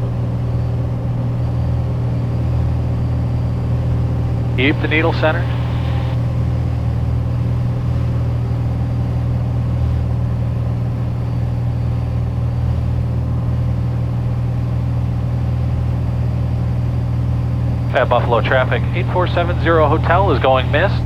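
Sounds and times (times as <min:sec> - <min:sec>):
aircraft engine and propeller drone: 0:00.0 - 0:21.0.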